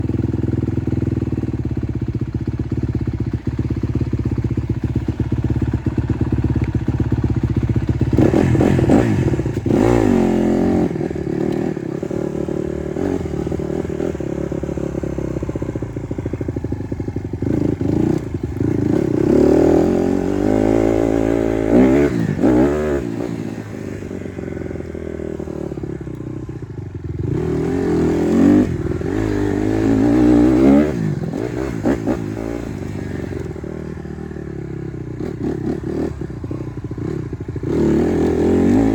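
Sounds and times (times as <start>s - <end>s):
dirt bike engine revving: 7.5s - 26.2s, 27.1s - 38.9s.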